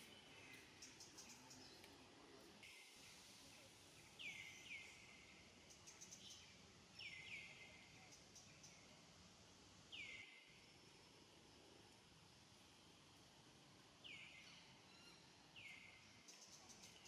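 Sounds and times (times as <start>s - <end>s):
quiet outdoor hiss: 0.0s - 17.0s.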